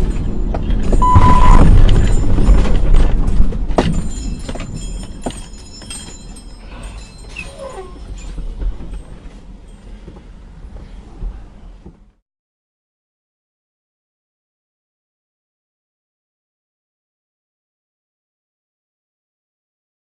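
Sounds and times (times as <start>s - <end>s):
vehicle and road noise: 0.0s - 12.2s
short high beep: 1.0s - 1.7s.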